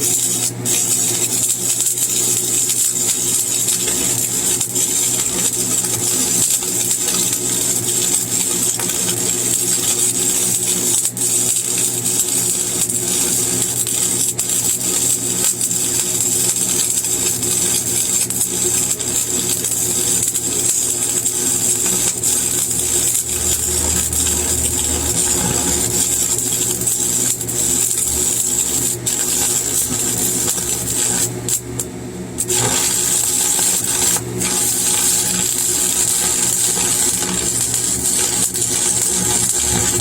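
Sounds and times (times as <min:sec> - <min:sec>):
welding arc crackling: 0:00.0 - 0:40.0
low hum: 0:22.0 - 0:28.3.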